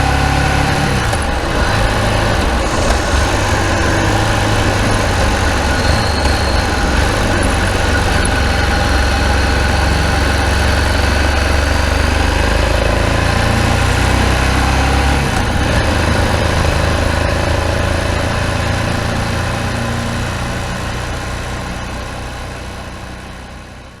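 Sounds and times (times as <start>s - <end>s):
motorcycle engine rumbling: 0.0s - 14.6s.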